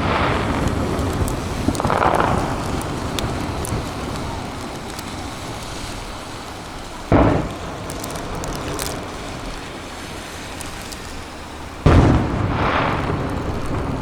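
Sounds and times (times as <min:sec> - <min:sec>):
faint firework crackles: 0:00.0 - 0:14.0
fireworks rumbling bursts: 0:00.0 - 0:14.0
loud aerial shell burst: 0:07.1 - 0:08.4.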